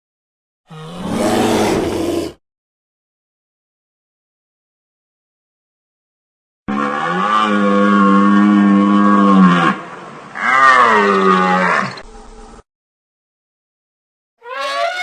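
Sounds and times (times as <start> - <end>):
large animal calling: 0.7 - 2.4.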